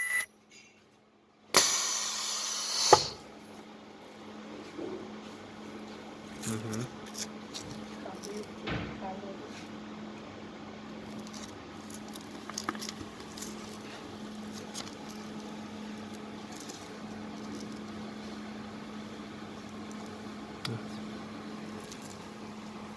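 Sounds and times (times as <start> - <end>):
low machine hum: 13.0 - 22.9.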